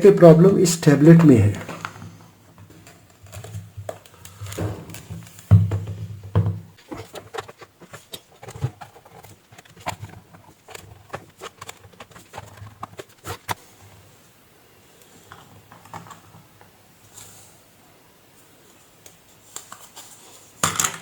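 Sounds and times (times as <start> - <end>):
objects clicking on a workbench: 20.6 - 21.0.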